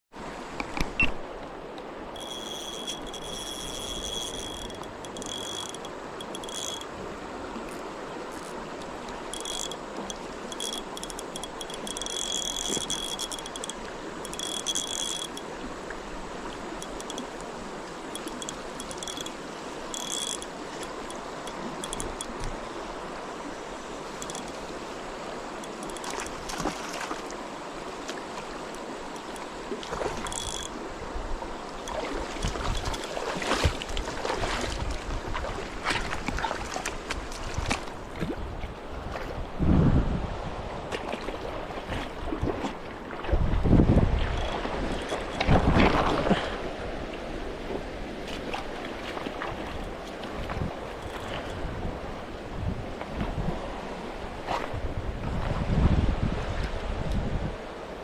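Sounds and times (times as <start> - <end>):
stream water running: 0.1 - 58.0
high-pitched ringing calls: 2.2 - 6.9, 9.3 - 15.5, 18.0 - 22.8, 24.1 - 24.7, 30.3 - 30.8.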